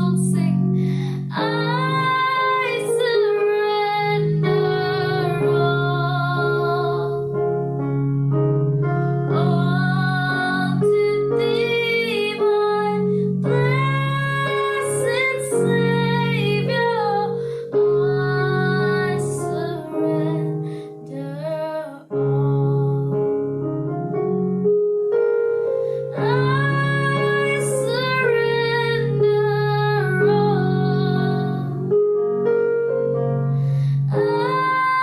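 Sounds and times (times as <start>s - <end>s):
woman singing worship song: 0.0s - 7.3s, 9.3s - 23.1s, 26.1s - 31.8s, 34.1s - 35.0s
sustained keyboard chords: 0.0s - 35.0s.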